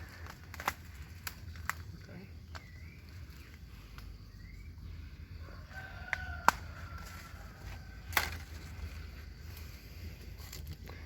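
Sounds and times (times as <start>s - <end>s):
distant rooster crowing: 5.3s - 9.0s
sharp snaps: 6.1s - 6.7s.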